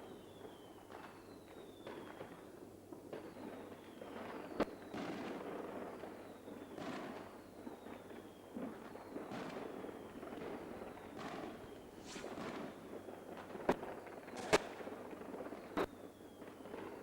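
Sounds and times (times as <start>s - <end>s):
fireworks crackling and popping: 0.3s - 17.0s
loud firework bang: 10.6s - 12.8s, 14.4s - 14.8s.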